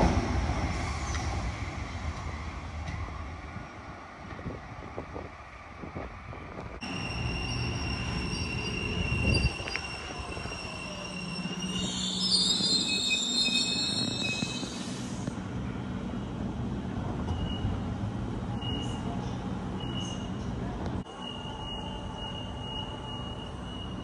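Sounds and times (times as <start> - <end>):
train rumble: 0.0 - 24.0
brake and wheel squeal: 6.8 - 15.3.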